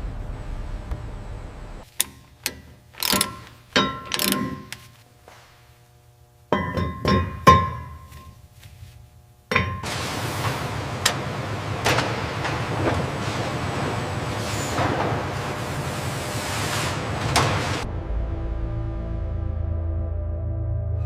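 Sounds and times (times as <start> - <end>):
low hum: 0.0 - 14.2
metal clanks and knocks: 1.9 - 4.9, 6.5 - 8.4, 9.5 - 10.0.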